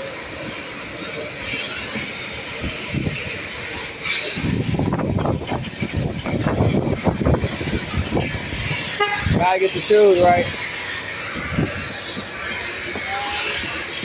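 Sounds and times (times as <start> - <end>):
sharp high hiss: 0.6 - 7.0
pressure spray wand hissing: 2.8 - 6.5.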